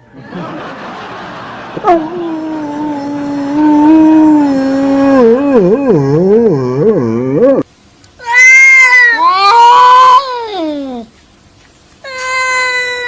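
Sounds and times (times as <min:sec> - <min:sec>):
cat yowling: 0:08.2 - 0:11.1, 0:12.1 - 0:13.0.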